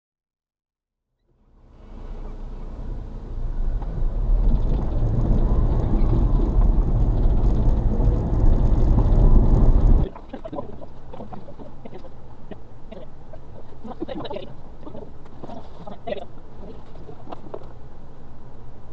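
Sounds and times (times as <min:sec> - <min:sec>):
truck engine rumbling: 0:01.4 - 0:10.1.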